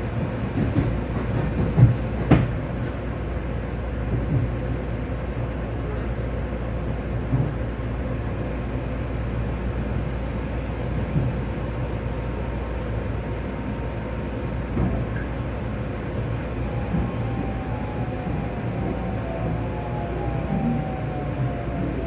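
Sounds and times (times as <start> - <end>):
train wheels rumbling on track: 0.0 - 22.0
thumps from the rails: 0.2 - 2.6, 7.3 - 7.6, 14.7 - 15.3.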